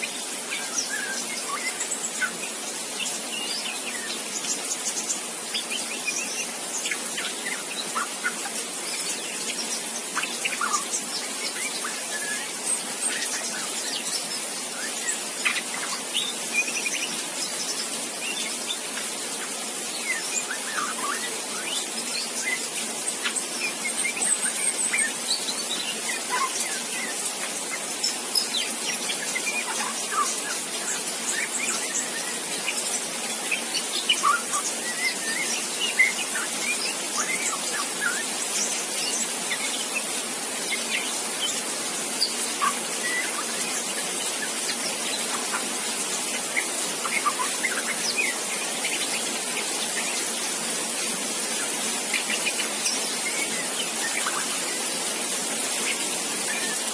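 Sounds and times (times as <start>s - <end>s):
steady high hiss: 0.0s - 56.9s
young bird chirping and whistling: 33.6s - 40.0s, 42.2s - 45.7s, 46.6s - 49.2s.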